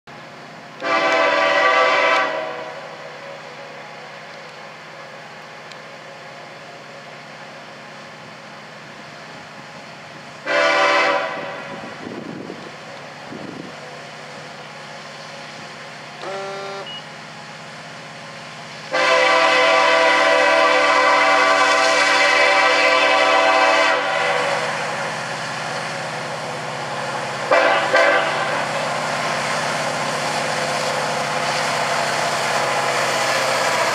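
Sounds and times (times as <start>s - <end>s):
locomotive air horn blasts: 0.8s - 2.9s, 10.4s - 11.8s, 16.2s - 17.0s, 18.9s - 24.8s, 27.5s - 28.6s.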